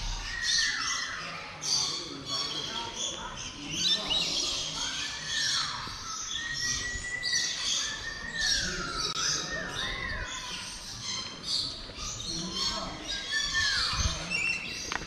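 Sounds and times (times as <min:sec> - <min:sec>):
birds chirping and squawking: 0:00.0 - 0:15.0
whistled calls gliding down: 0:00.0 - 0:15.0.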